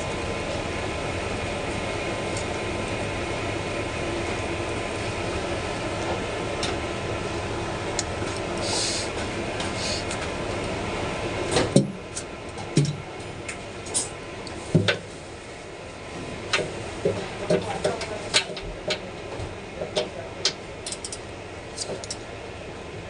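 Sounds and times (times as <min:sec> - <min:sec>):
machine humming: 0:00.0 - 0:14.5.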